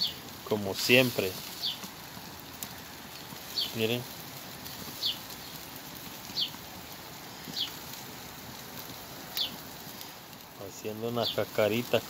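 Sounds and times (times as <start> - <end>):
food sizzling on a grill: 0.0 - 12.0
bird chirping: 1.5 - 1.9, 3.1 - 3.8, 4.8 - 6.6, 7.4 - 7.8, 9.3 - 9.6.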